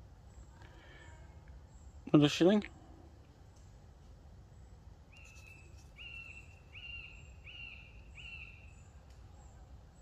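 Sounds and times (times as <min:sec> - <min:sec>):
bird whistling: 0:05.1 - 0:08.8.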